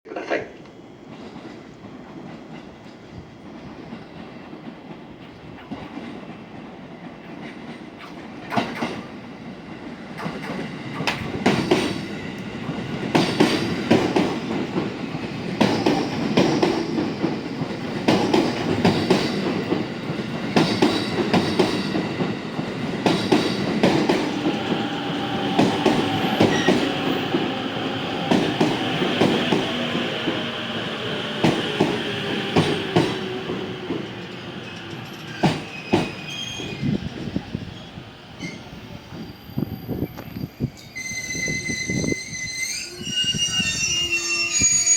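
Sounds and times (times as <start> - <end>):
rumble of train wheels: 0.2 - 44.9
train wheels clacking over rail joints: 3.9 - 9.2, 10.2 - 27.6, 34.8 - 36.3.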